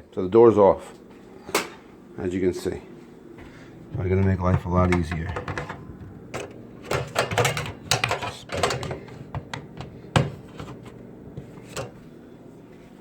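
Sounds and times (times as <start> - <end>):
microwave door clicks and knocks: 4.2 - 12.0.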